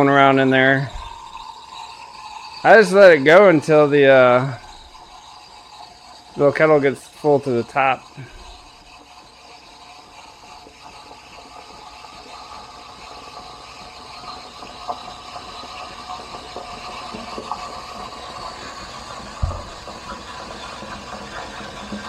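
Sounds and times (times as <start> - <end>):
steam wand frothing milk: 0.0 - 22.0
low thump: 0.9 - 1.4, 19.4 - 20.1.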